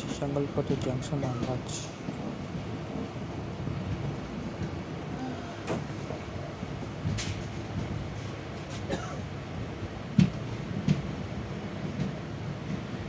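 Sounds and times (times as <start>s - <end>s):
train coach rumbling on rails: 0.0s - 13.0s.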